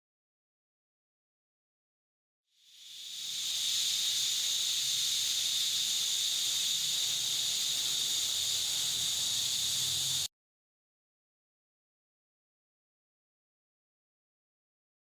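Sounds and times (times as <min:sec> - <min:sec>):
high-pitched hiss of air or spray: 0:02.6 - 0:10.3.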